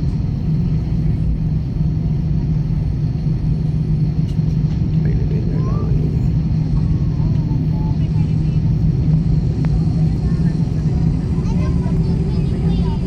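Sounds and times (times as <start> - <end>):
airplane engines droning: 0.0 - 13.0.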